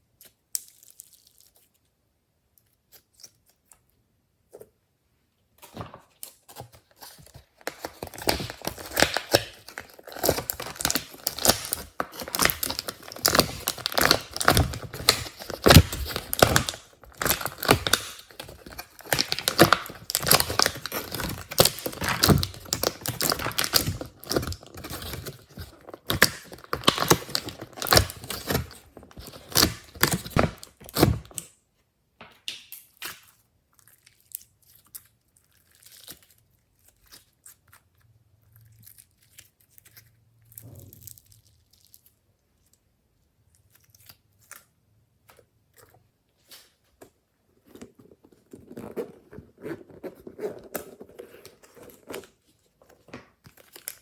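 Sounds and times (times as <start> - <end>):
hands squishing sticky slime: 6.1 - 31.5.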